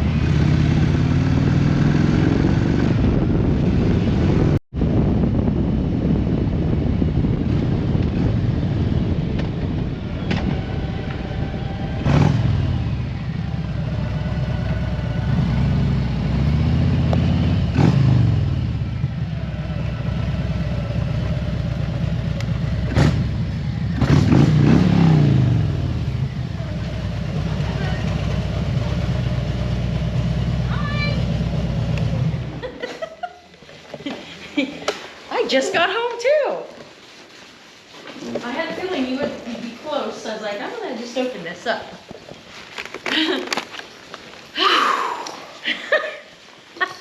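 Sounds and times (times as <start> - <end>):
wind rush: 0.0 - 15.5
motorcycle engine running: 0.0 - 32.6.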